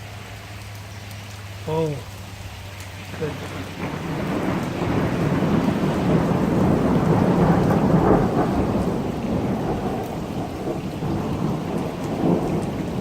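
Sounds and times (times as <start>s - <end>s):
heavy rain: 0.0s - 13.0s
rolling thunder: 3.2s - 13.0s.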